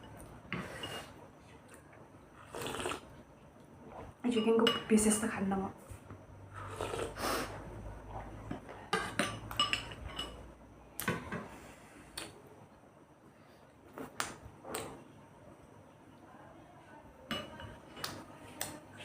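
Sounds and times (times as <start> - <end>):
cutlery clinking against plates: 8.5 - 10.4.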